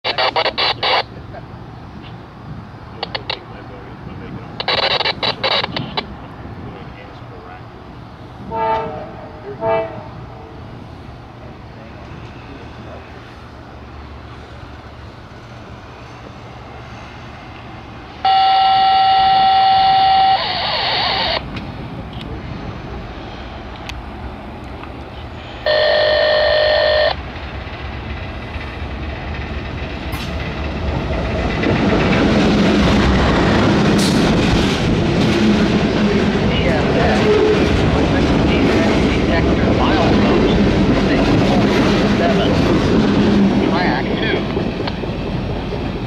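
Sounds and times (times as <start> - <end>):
locomotive engine: 0.0 - 46.0
locomotive horn blasts: 8.5 - 10.2, 18.3 - 20.4, 25.4 - 27.2
train wheels on rails: 10.2 - 46.0.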